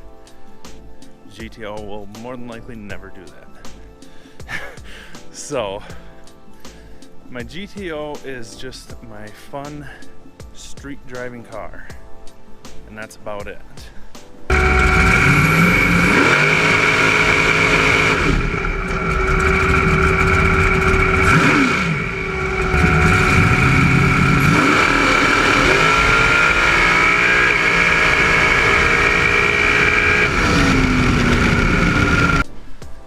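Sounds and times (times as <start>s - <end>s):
car engine accelerating hard: 14.5s - 32.4s.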